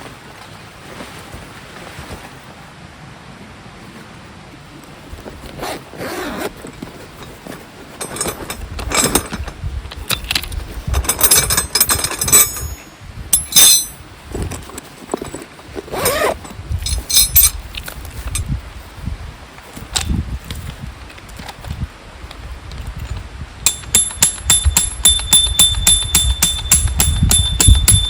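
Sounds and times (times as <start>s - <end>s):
small stream rushing: 0.0s - 9.5s
gear rustling and scraping: 5.0s - 19.0s
zip-like scrape: 5.6s - 6.5s, 15.9s - 16.4s.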